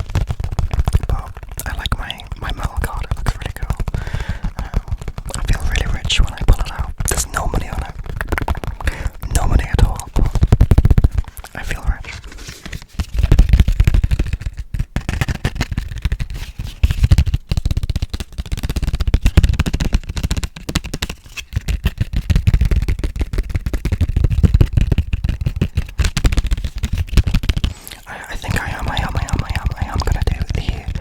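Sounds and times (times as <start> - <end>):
quick taps and scratches on microphone: 0.0 - 31.0.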